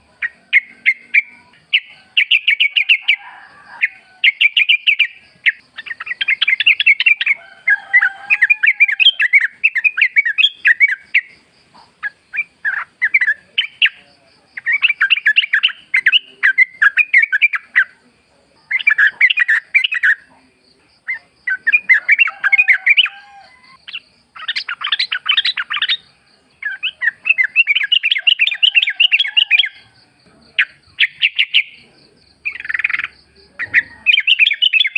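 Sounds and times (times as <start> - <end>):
bulbul singing chattering notes: 4.3 - 7.4, 30.6 - 34.9.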